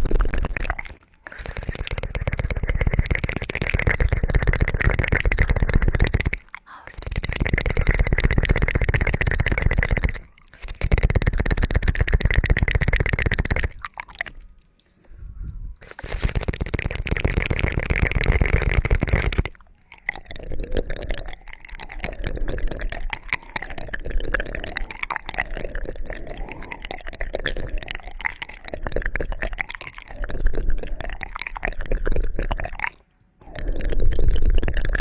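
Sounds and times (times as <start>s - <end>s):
low rumble: 15.1s - 15.8s.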